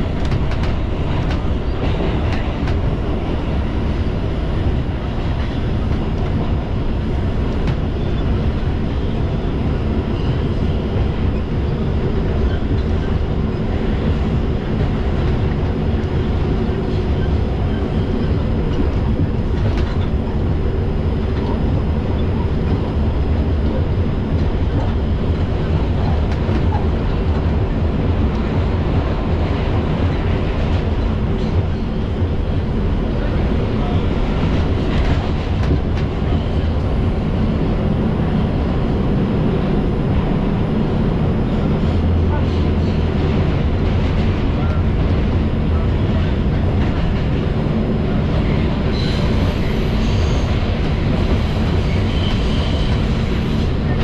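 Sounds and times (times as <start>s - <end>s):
subway wheels rumbling on track: 0.0s - 54.0s.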